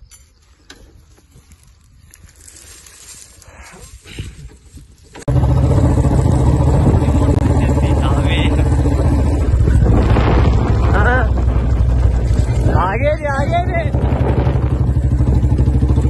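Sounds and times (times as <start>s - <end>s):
rustling and handling: 0.3s - 5.3s
motorcycle engine running: 5.2s - 16.0s.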